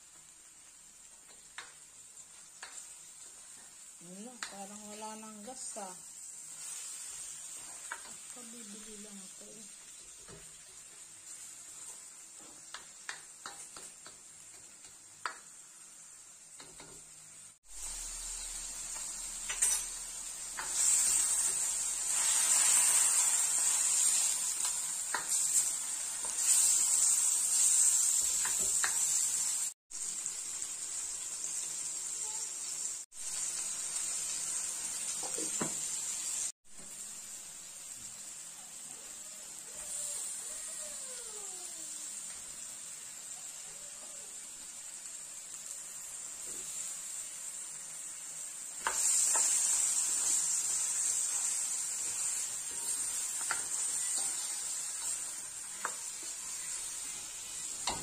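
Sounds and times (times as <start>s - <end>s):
chicken sizzling in oil: 0.0s - 58.0s
spatula scraping a wok: 17.8s - 29.6s, 48.8s - 58.0s.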